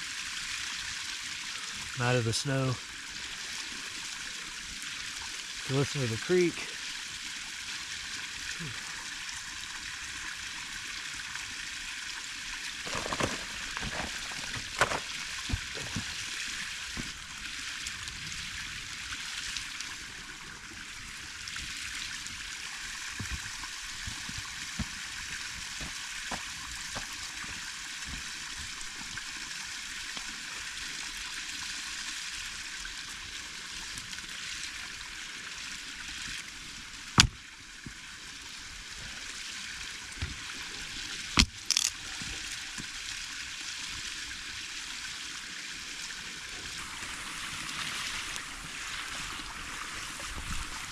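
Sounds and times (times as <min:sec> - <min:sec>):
creek water flowing: 0:00.0 - 0:50.9
sharp clicks and pops: 0:41.4 - 0:41.9.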